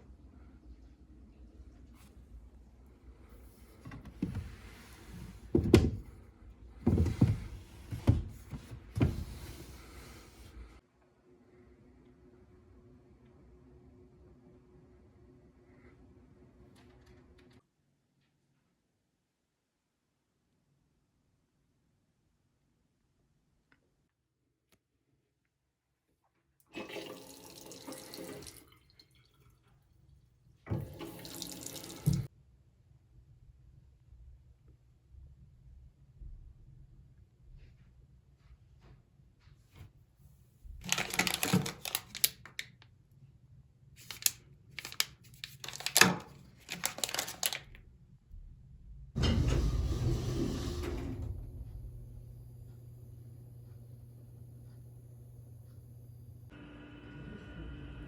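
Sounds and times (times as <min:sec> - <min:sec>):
water running from a tap: 0:26.8 - 0:29.4, 0:30.7 - 0:32.3.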